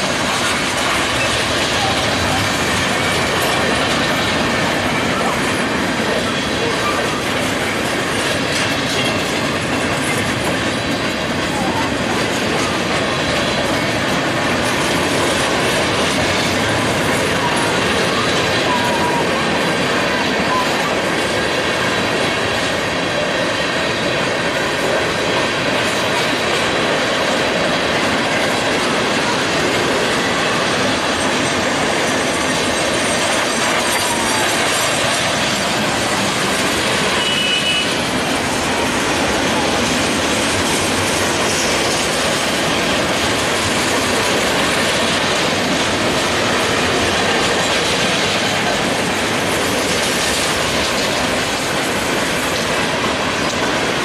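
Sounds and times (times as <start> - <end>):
steel wheels rolling on rails: 0.0 - 54.0.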